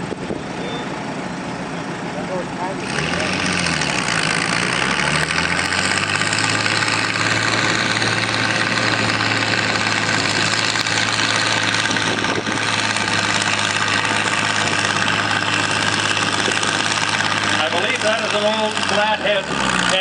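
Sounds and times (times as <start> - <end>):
tractor engine running under load: 0.0 - 20.0.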